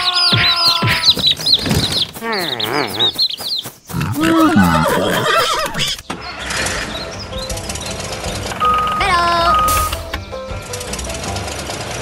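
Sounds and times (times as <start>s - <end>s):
chicks peeping: 0.0s - 4.7s
wavering animal calls: 2.2s - 6.0s.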